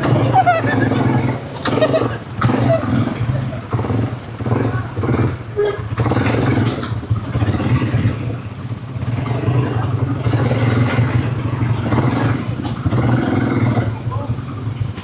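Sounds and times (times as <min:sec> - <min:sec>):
quad bike engine running: 0:00.0 - 0:15.0.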